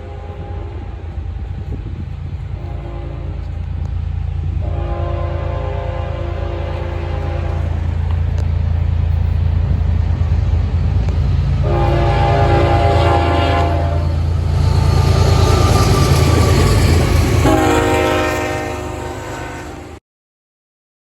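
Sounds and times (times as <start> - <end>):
locomotive horn blasts: 0.0 - 1.2, 2.5 - 3.9, 4.5 - 8.1, 11.6 - 20.0
train rumbling: 0.0 - 20.0.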